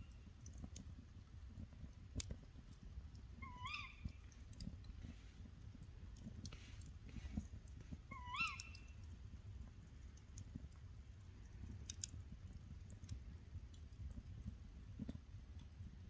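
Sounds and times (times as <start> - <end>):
faint animal cry: 3.4 - 4.2, 8.1 - 9.0.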